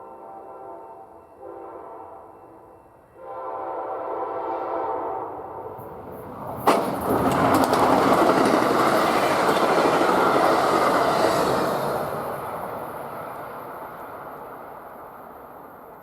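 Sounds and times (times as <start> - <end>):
train wheels on rails: 5.8 - 16.0.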